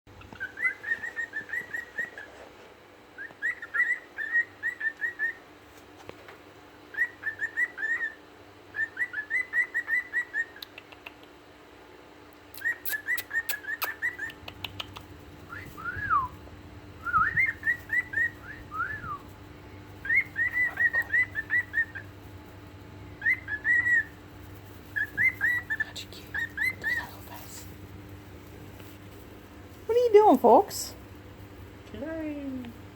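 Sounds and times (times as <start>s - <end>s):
cockatiels whistling: 0.3s - 2.4s, 3.2s - 5.4s, 6.9s - 10.7s, 12.6s - 14.4s, 15.5s - 16.4s, 17.0s - 19.3s, 20.0s - 22.1s, 23.1s - 24.2s, 24.8s - 27.6s.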